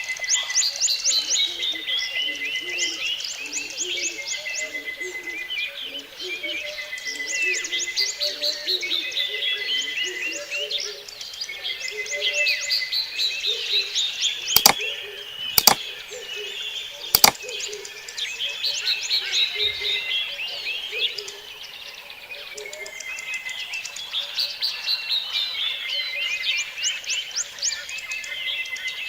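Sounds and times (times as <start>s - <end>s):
sharp clicks: 14.6s - 14.8s, 15.6s - 15.8s, 17.2s - 17.4s.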